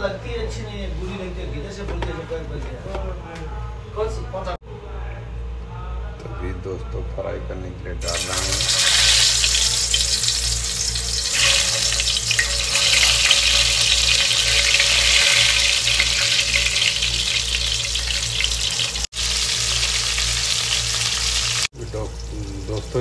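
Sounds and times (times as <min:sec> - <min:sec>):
food sizzling in frying pan: 0:08.0 - 0:23.0.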